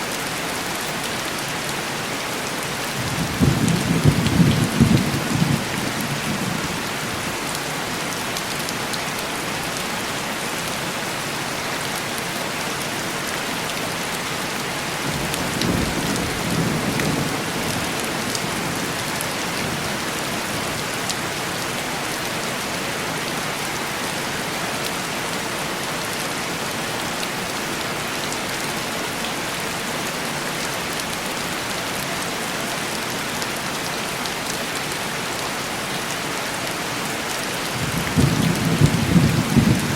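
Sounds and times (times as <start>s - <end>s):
heavy rain on window glass: 0.1s - 39.9s
distant thunder: 37.8s - 39.9s.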